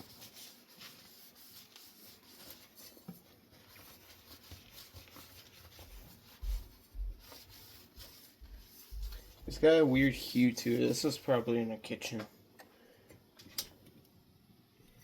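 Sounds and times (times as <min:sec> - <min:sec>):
wipe rubbing and scratching: 0:00.0 - 0:11.6.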